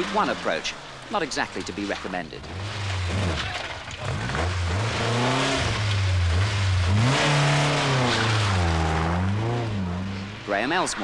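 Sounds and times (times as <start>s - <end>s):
rally car engine revving hard: 2.4s - 10.5s.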